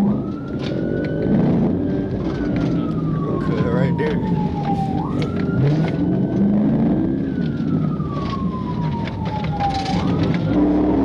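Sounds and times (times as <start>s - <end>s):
police siren wailing: 0.0s - 11.0s
road noise: 0.0s - 11.0s
vehicle engine: 1.4s - 8.2s.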